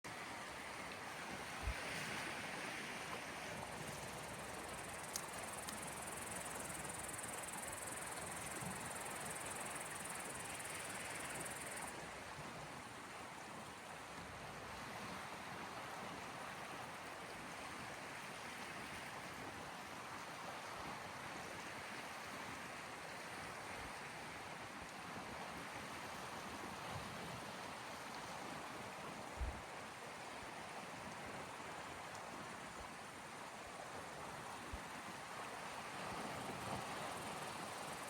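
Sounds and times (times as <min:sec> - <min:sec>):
waves washing on shore: 0:00.1 - 0:20.1.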